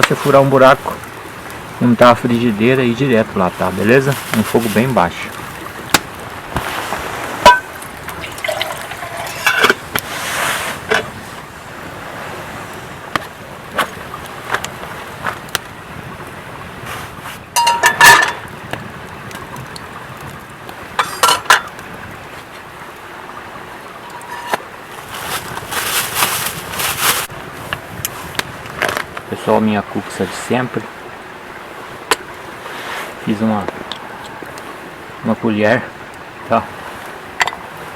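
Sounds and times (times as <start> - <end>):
steady background hiss: 0.0 - 37.9
metal cookware clinking: 7.4 - 7.7, 8.3 - 9.8, 17.6 - 18.5, 21.0 - 21.7, 24.0 - 24.6.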